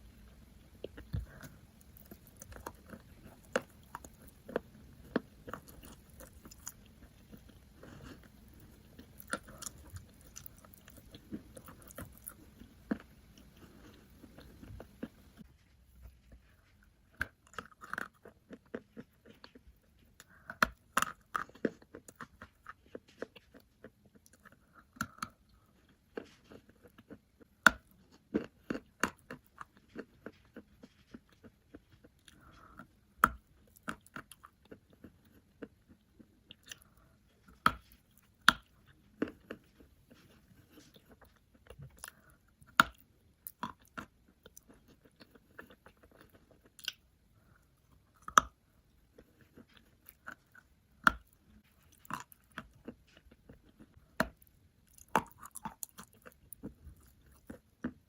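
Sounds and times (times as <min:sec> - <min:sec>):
dry crunching of chewed chalk: 0:00.0 - 0:58.0.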